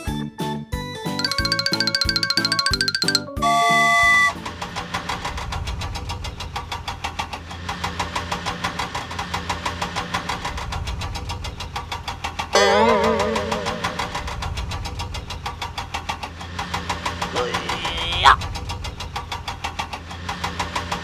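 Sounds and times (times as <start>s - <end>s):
cartoon engine chugging: 1.2s - 4.6s.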